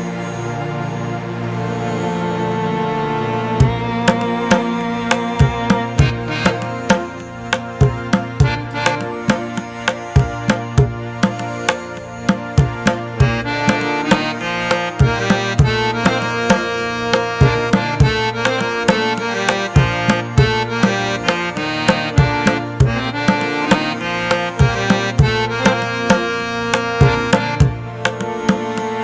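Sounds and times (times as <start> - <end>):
sustained melodic notes: 2.4 - 29.0
tabla beat: 3.6 - 29.0.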